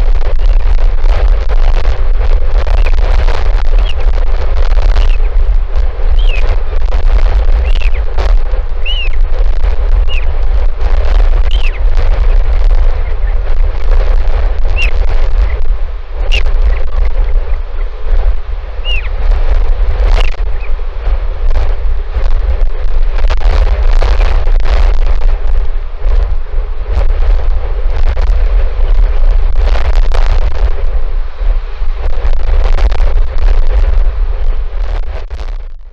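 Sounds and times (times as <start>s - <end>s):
wind buffeting microphone: 0.0s - 35.9s
short high bird chirps: 6.2s - 6.4s, 8.8s - 9.2s, 18.8s - 19.1s.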